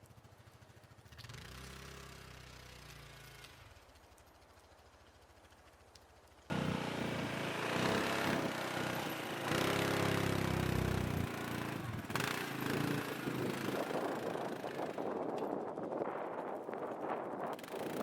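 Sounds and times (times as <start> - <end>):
small engine running faintly: 0.0 - 18.0
loud engine revving: 6.5 - 14.6.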